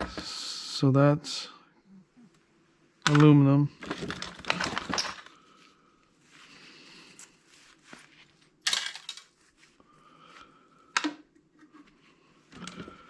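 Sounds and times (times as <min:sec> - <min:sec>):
metal parts clinking and tapping: 0:08.7 - 0:09.3.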